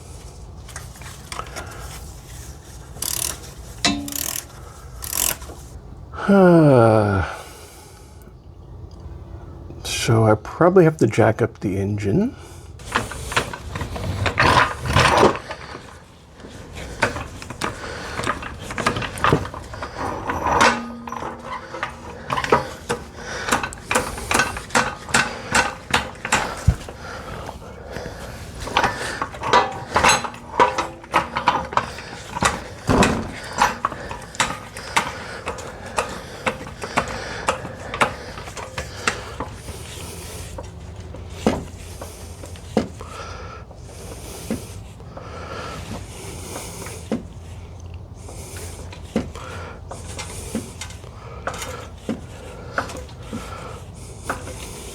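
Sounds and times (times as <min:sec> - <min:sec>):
metal tools clinking: 0:03.0 - 0:05.7, 0:18.2 - 0:26.4, 0:28.8 - 0:36.1.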